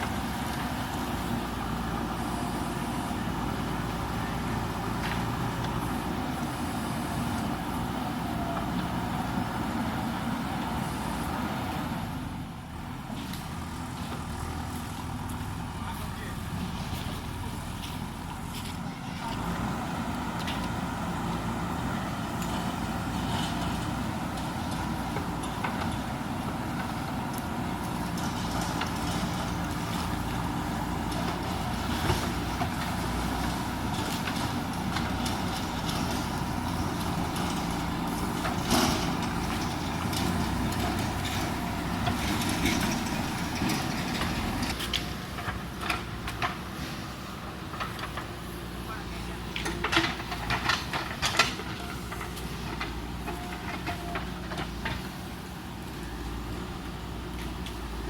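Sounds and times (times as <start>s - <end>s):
diesel engine under load: 0.0s - 58.0s.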